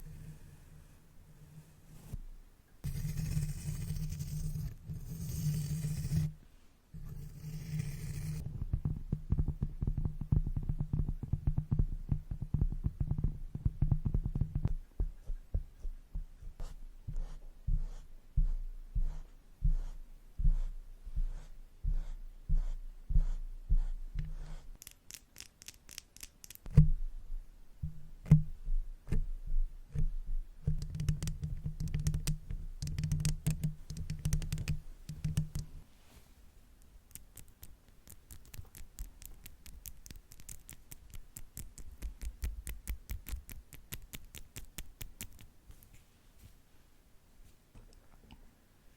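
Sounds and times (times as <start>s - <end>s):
brushes tapping on microphone: 30.7s - 35.7s.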